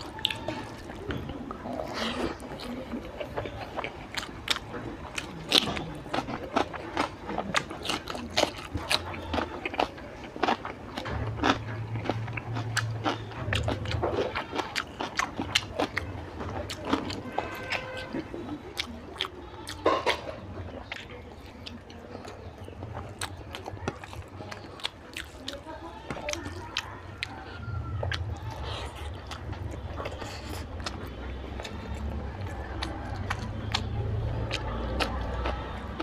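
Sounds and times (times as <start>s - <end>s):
person chewing food: 0.0s - 36.0s.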